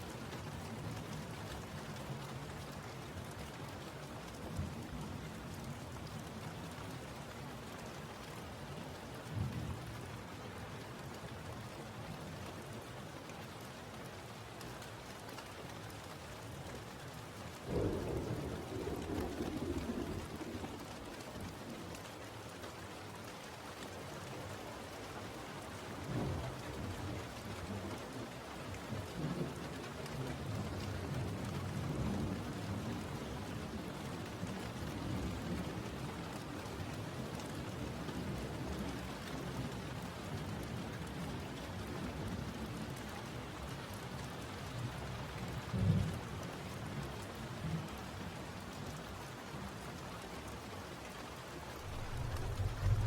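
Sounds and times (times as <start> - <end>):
steady rain falling: 0.0 - 53.0
low rolls of thunder: 17.6 - 22.0, 51.8 - 53.0
brief low rumbles: 51.8 - 53.0.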